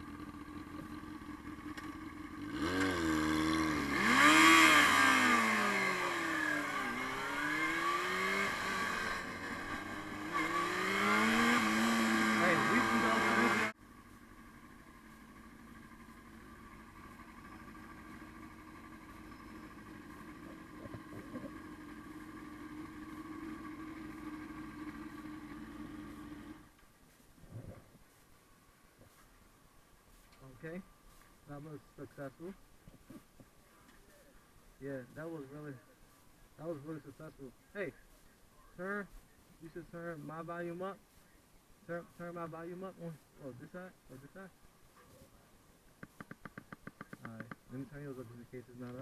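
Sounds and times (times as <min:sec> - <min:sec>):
sport bike engine accelerating: 0:00.0 - 0:26.8.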